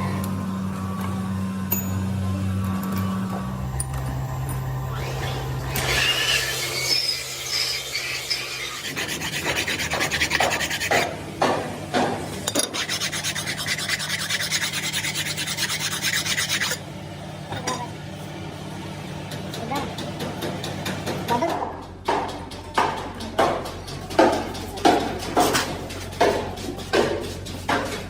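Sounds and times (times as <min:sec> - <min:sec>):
rasping on metal: 0:05.8 - 0:11.1, 0:12.5 - 0:16.8.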